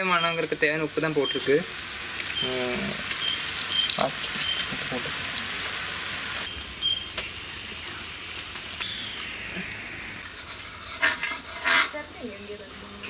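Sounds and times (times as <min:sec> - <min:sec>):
curry sizzling in a pan: 0:00.0 - 0:09.2.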